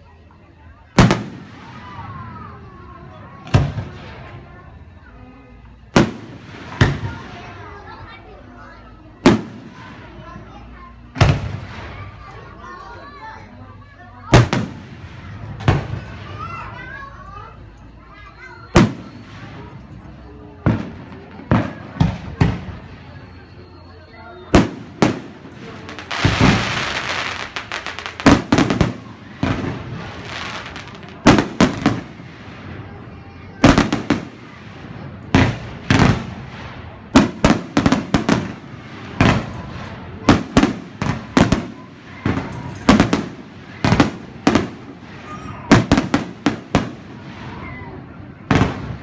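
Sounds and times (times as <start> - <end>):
fireworks crackling hiss: 0.0 - 49.0
fireworks booms: 0.4 - 13.3, 14.2 - 49.0.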